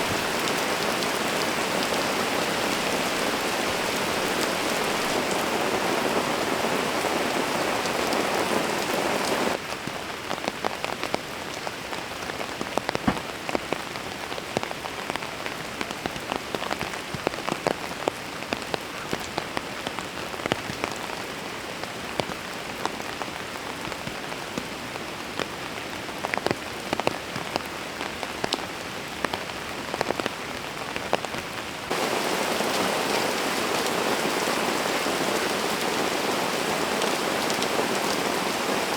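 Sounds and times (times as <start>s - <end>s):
raindrops striking a surface: 0.0s - 24.7s, 25.4s - 38.9s
dense rain hiss: 0.0s - 38.9s.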